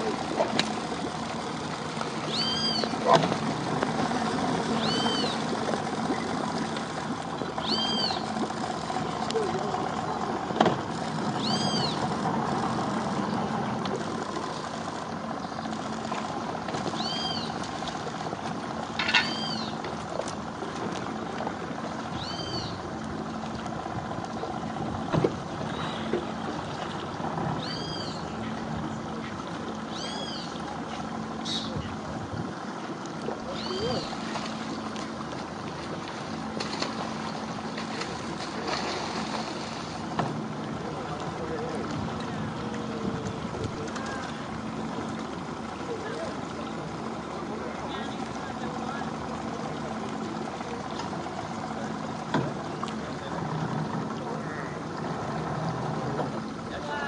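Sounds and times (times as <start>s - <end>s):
boat rushing on water: 0.0s - 57.0s
engine idling: 0.0s - 57.0s
faint motor hum: 0.0s - 57.0s
bird call: 2.2s - 3.1s, 4.8s - 5.4s, 7.6s - 8.3s, 11.4s - 12.0s, 17.0s - 17.6s, 19.0s - 19.8s, 22.2s - 22.8s, 27.6s - 28.4s, 29.9s - 30.6s, 31.4s - 31.9s, 33.5s - 34.2s
bird whistle: 2.3s - 2.9s, 7.6s - 8.2s, 22.2s - 22.8s.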